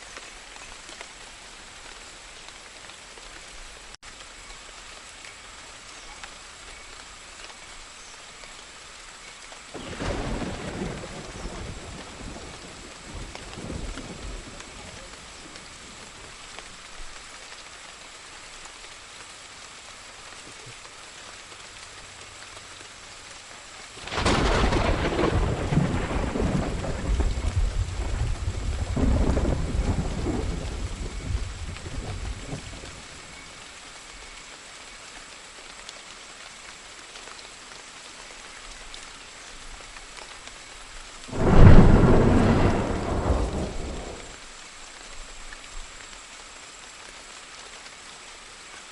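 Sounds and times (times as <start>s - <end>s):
steady rain: 0.0s - 48.9s
thunder claps: 24.0s - 32.8s, 41.3s - 44.4s.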